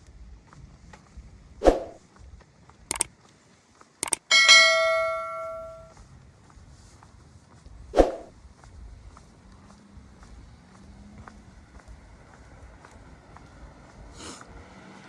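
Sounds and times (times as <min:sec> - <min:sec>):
sharp clicks: 0:02.9 - 0:03.1, 0:04.0 - 0:04.4
small bell ring: 0:04.3 - 0:05.9.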